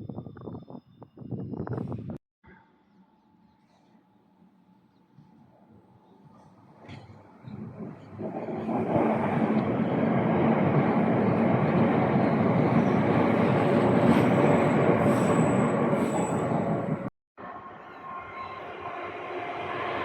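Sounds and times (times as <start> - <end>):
train wheels rumbling on rail: 6.3 - 17.1.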